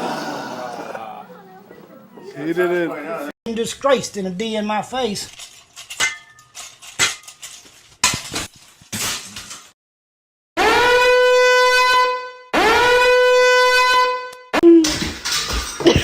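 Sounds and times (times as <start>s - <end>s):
sharp knocks and clinks: 5.8s - 8.2s
long horn blasts: 10.6s - 14.5s.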